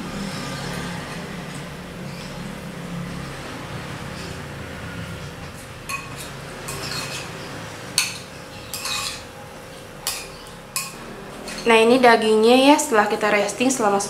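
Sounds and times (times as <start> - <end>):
metal spoon scraping bowl: 5.2 - 12.0
spoon clinking on ceramic bowl: 8.0 - 9.3.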